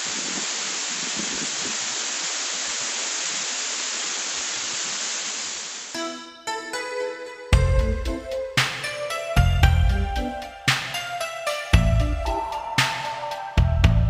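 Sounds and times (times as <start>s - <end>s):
waterfall rushing: 0.0s - 6.2s
music: 6.0s - 14.0s.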